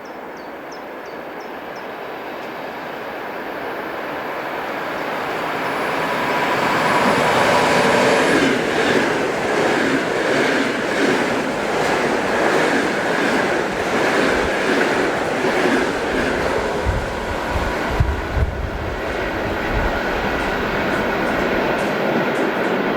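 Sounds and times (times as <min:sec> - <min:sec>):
electric train running past: 0:00.2 - 0:22.9
wheels clicking over rail joints: 0:06.1 - 0:22.8.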